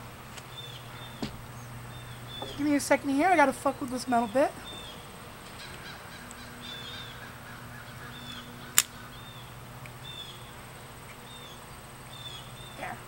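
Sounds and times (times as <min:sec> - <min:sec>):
small bird chirping: 0:00.5 - 0:03.0, 0:03.8 - 0:13.0
sharp metallic click: 0:08.7 - 0:09.0.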